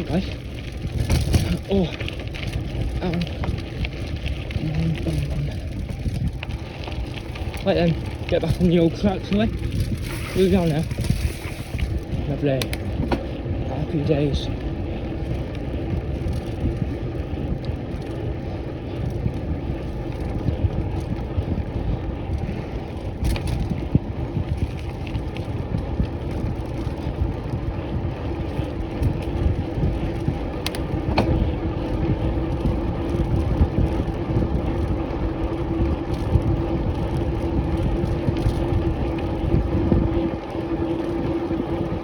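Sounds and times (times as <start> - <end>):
bike tyres rumbling: 0.0 - 42.0
steady hum: 0.0 - 42.0
wind on microphone: 0.0 - 42.0.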